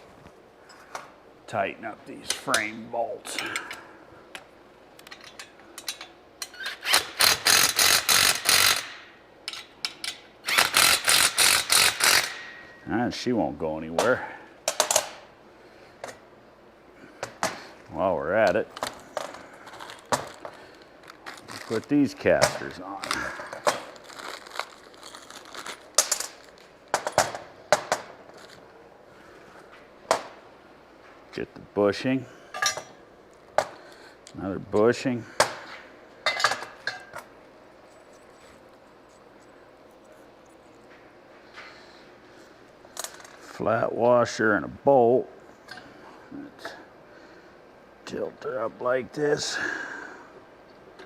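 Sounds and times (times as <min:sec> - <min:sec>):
ratchet wrench clicks: 0:06.4 - 0:08.9, 0:09.5 - 0:12.4
ratchet wrench ratcheting: 0:06.4 - 0:09.0, 0:10.4 - 0:12.4.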